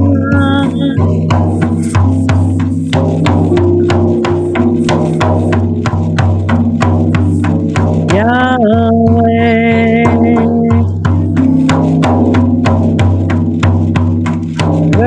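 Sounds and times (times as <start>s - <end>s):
sustained tones stepping between pitches: 0.0s - 14.3s
steady drum beat: 0.0s - 15.0s.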